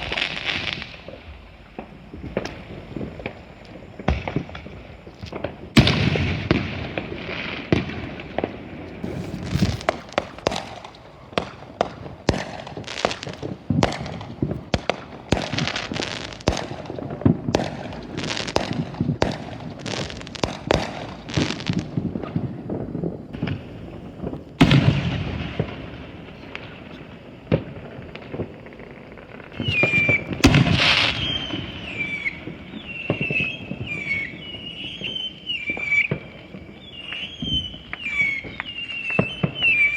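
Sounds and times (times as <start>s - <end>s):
firecracker pops and crackles: 0.0s - 39.9s
firework booms: 0.0s - 39.9s
warbling high whistle: 29.6s - 39.9s.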